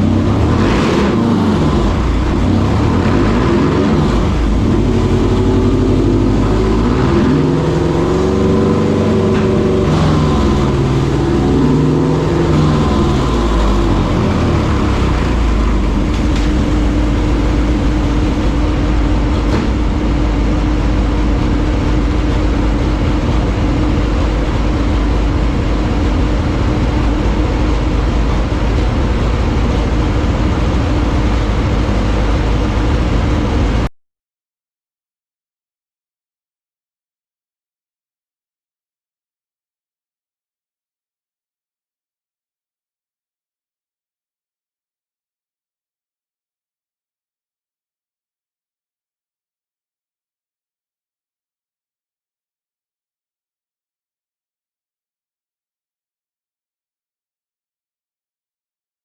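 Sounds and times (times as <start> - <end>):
cooling fans blowing: 0.0 - 33.9
motorcycle engine on a dyno: 0.0 - 33.9.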